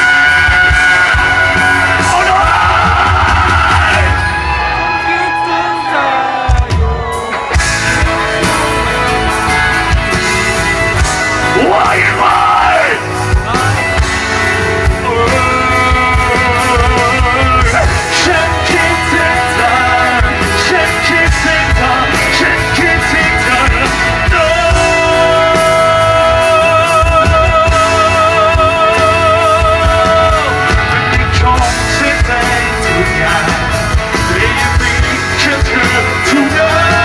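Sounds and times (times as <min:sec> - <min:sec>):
drums keeping a beat: 0:00.0 - 0:37.0
electric guitars: 0:00.0 - 0:37.0
person singing: 0:00.0 - 0:37.0.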